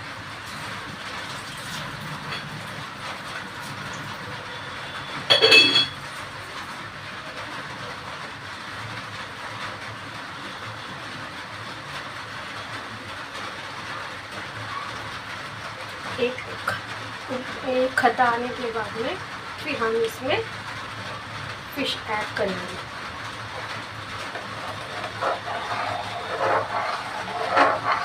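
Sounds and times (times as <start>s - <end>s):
pot hissing on stove: 22.4s - 28.0s.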